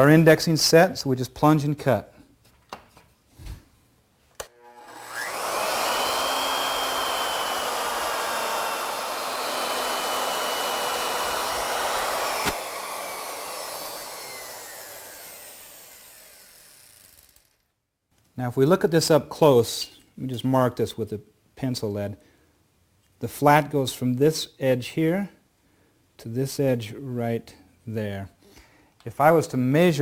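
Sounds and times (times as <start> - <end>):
woodworking router whining: 4.4 - 17.5.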